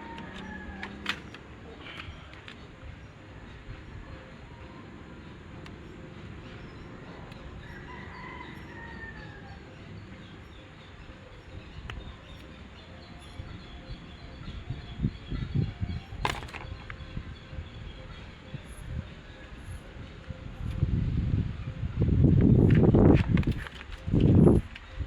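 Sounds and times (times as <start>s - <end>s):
rooster crowing: 0.0s - 1.1s, 7.6s - 9.9s.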